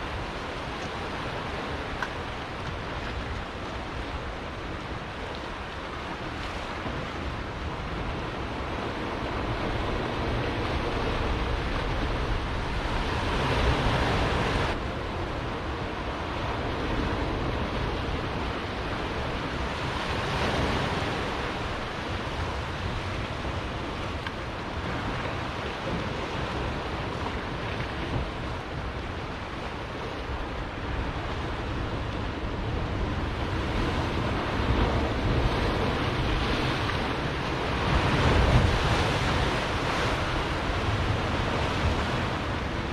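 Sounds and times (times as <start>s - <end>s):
surf washing on rocky shore: 0.0s - 42.9s
wind buffeting microphone: 0.0s - 42.9s.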